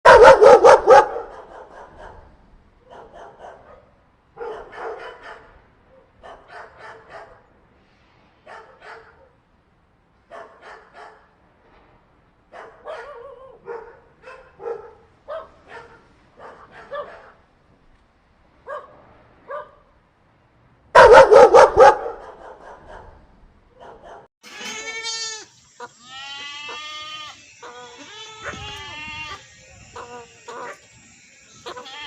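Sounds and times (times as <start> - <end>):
dog barking: 0.0 - 7.4, 8.5 - 9.4, 10.3 - 11.3, 12.5 - 17.4, 18.6 - 19.9, 21.0 - 24.3.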